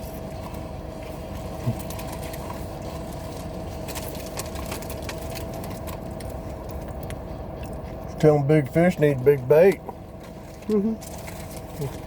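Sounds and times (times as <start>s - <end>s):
low hum inside car: 0.0s - 12.0s.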